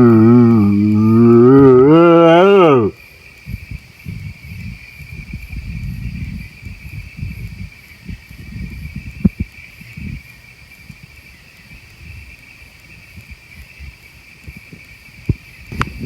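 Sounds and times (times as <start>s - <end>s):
man imitating animal call: 0.0s - 3.0s
faint low rumbling: 0.0s - 7.7s
crickets chirping: 0.0s - 16.0s.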